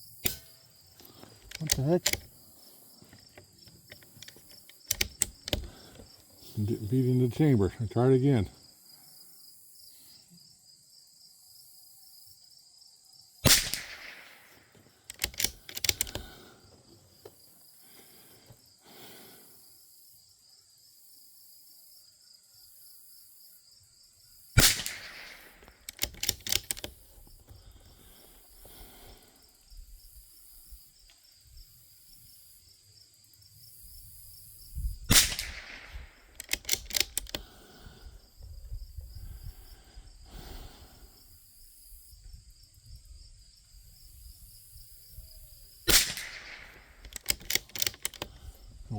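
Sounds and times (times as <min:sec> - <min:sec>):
rifle bolt clicking: 0:00.2 - 0:02.4, 0:03.0 - 0:06.0, 0:13.5 - 0:14.4, 0:15.1 - 0:16.4, 0:24.6 - 0:27.0, 0:35.1 - 0:37.5, 0:45.9 - 0:48.5
rifle shots: 0:13.5 - 0:16.3, 0:24.6 - 0:26.8, 0:35.1 - 0:37.3, 0:45.9 - 0:48.2.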